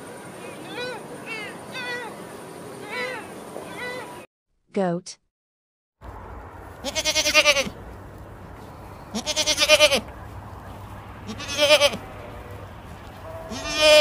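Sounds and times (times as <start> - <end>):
steady low hum: 6.0 - 14.0
goats bleating: 6.8 - 7.8, 9.1 - 10.1, 11.2 - 12.2, 13.5 - 14.0.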